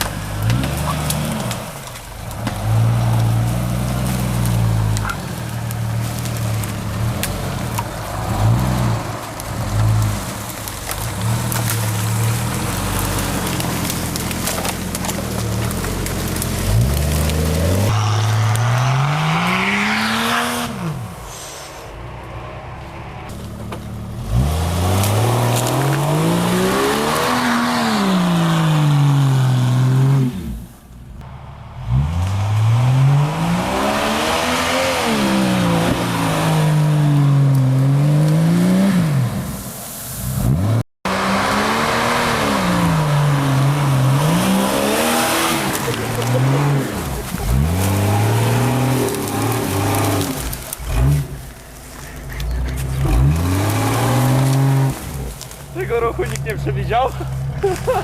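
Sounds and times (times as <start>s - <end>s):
mud spraying and wheel noise: 0.0s - 58.0s
off-road engine revving: 0.0s - 58.0s.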